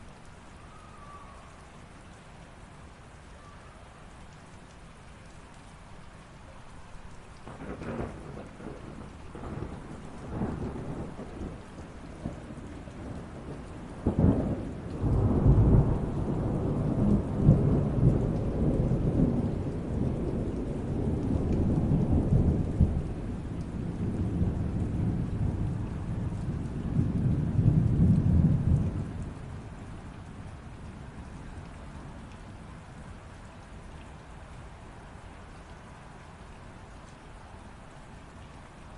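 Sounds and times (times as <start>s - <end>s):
light rain hissing: 0.0s - 38.9s
thunder crack and rumble: 7.4s - 30.6s.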